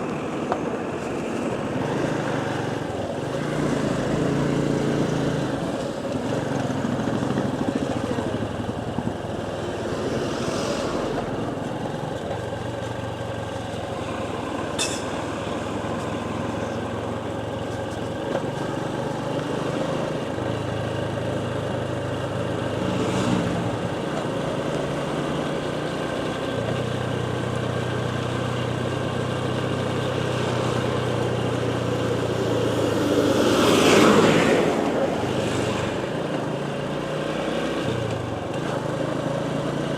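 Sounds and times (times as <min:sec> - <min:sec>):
motorcycle engine running: 0:00.0 - 0:39.9
steady rushing noise: 0:08.9 - 0:12.2.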